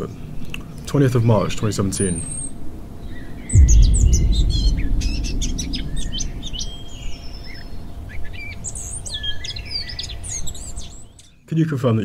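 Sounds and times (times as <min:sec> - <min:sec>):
low rumble: 0:03.5 - 0:07.8.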